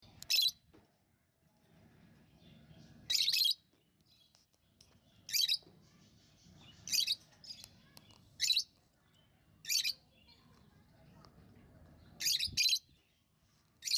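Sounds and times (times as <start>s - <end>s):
faint bird chatter: 0.0s - 13.9s
bird high-pitched chirps: 0.1s - 0.6s, 2.6s - 10.6s, 12.0s - 13.9s.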